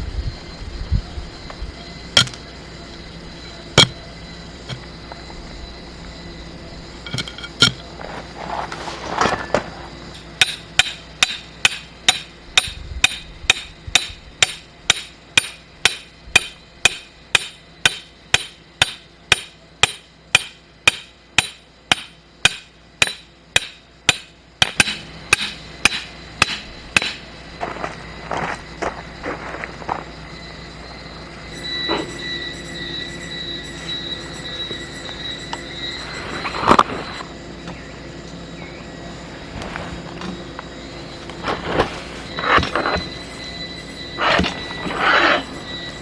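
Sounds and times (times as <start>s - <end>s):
ringing hammer strikes: 3.8s - 4.0s, 10.2s - 27.3s.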